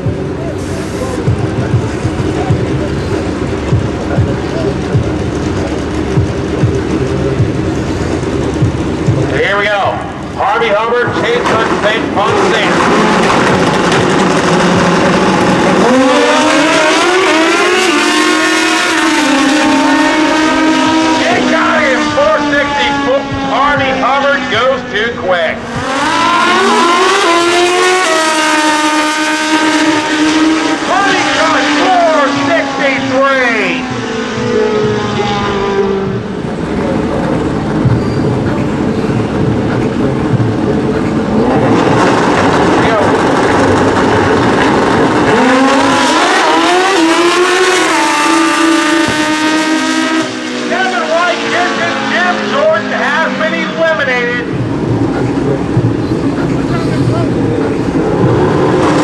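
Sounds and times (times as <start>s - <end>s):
drag bikes accelerating: 0.0s - 59.0s
motorcycle engines rumbling: 0.0s - 59.0s.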